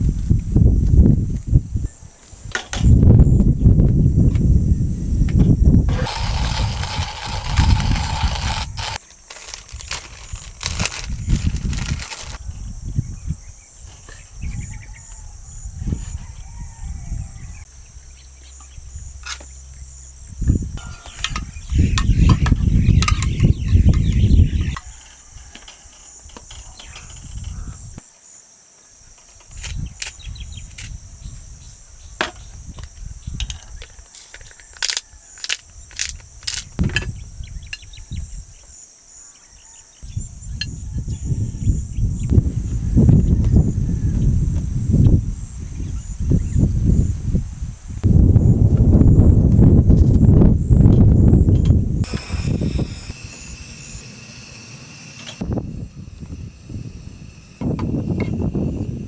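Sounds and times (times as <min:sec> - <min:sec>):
high-pitched insect chorus: 0:00.0 - 0:49.2, 0:50.3 - 0:59.0
low rumbles: 0:17.2 - 0:25.3.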